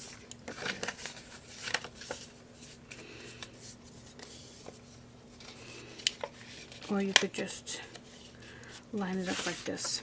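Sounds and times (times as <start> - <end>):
paper sheets rustling: 0.0 - 7.2, 9.0 - 10.0.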